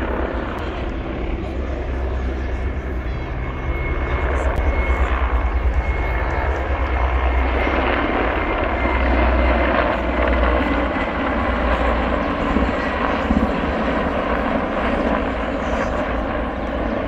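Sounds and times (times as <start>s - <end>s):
helicopters flying past: 0.0s - 17.0s.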